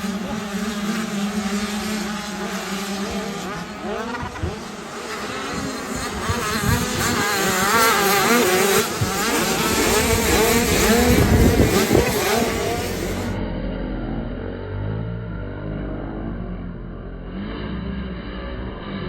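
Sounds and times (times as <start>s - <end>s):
dirt bikes revving: 0.0s - 13.4s.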